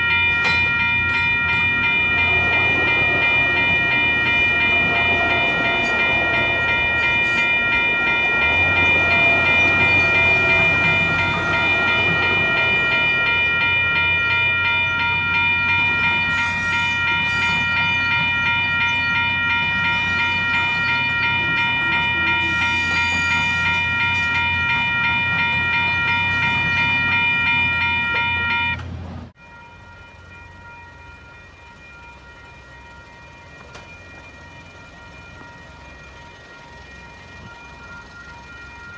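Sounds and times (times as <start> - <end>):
level crossing bells ringing: 0.0 - 38.9
train rumbling: 0.0 - 38.9.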